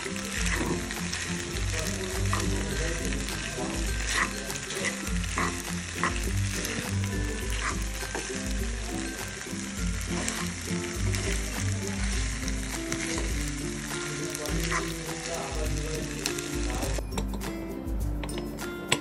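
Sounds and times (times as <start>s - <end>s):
pasta sizzling in a frying pan: 0.0s - 17.0s
background music: 0.0s - 19.0s
metal spoon scraping a pan: 0.2s - 8.5s, 14.0s - 15.4s.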